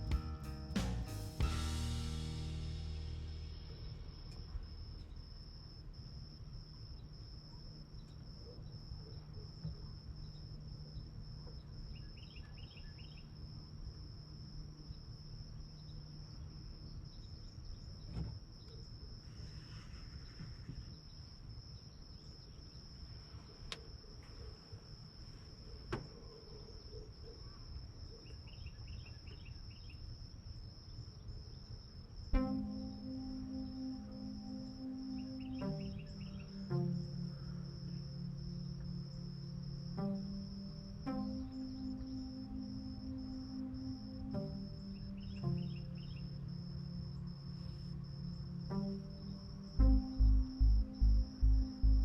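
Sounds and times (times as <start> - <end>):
low rumble: 0.0 - 6.0, 49.8 - 52.0
cricket trill: 1.6 - 52.0
insect chirps: 1.6 - 52.0.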